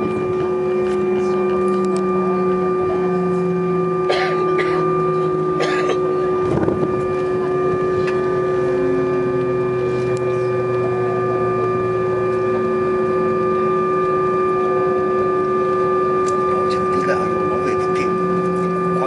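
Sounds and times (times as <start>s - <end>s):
airliner cabin drone: 0.0s - 19.0s.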